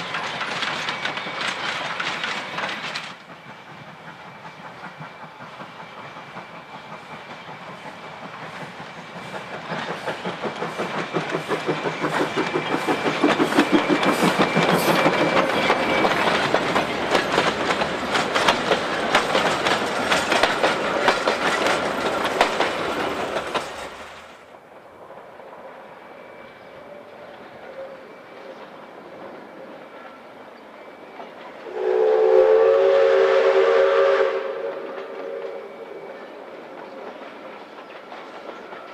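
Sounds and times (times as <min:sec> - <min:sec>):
steam locomotive clatter: 0:00.0 - 0:38.9
locomotive whistle chord: 0:30.9 - 0:36.5.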